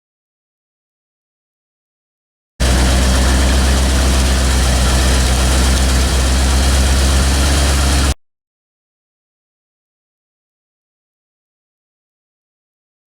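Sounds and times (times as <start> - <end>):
car engine idling: 2.6 - 8.2.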